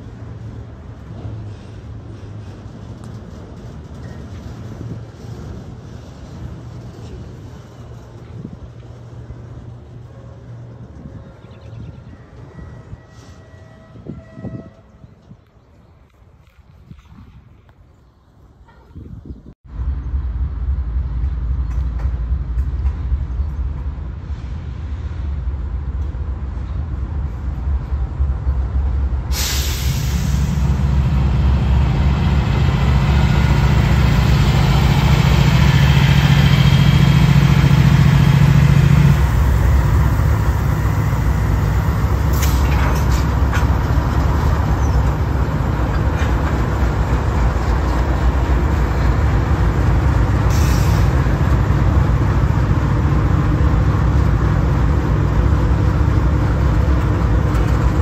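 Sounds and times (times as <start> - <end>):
rolling train cars rumbling: 0.0 - 58.0
locomotive engine droning: 19.7 - 58.0.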